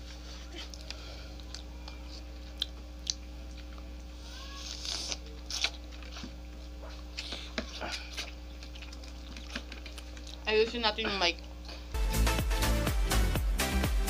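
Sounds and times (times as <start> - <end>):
crunching and chewing food: 0.0 - 12.0
wet mouth clicks: 2.5 - 3.6.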